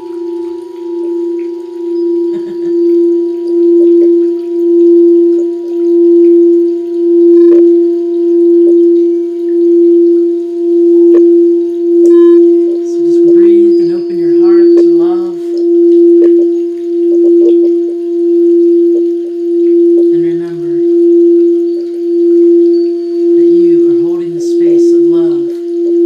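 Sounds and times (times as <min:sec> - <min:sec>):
singing bowl ringing: 0:00.0 - 0:26.0
person humming: 0:12.0 - 0:16.4.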